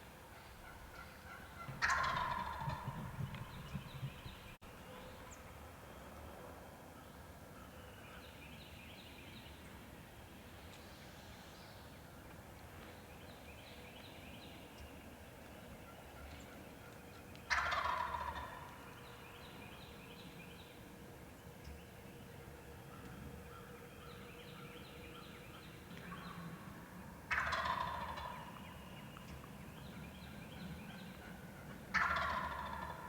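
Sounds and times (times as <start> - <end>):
turkey gobbling: 0.4 - 4.4, 17.5 - 18.8, 27.2 - 28.8, 31.2 - 33.0.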